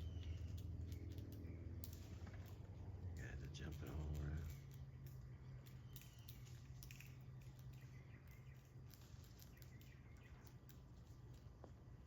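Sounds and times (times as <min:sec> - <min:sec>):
faint bird chirps: 0:00.0 - 0:01.8, 0:03.2 - 0:10.8
faint ticks and rustles: 0:00.0 - 0:12.0
steady low hum: 0:00.0 - 0:12.0.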